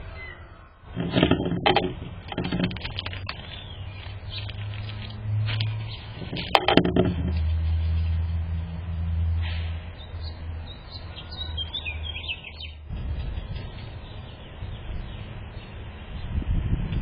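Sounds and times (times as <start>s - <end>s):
small birds chirping: 2.8s - 6.5s, 9.9s - 16.6s.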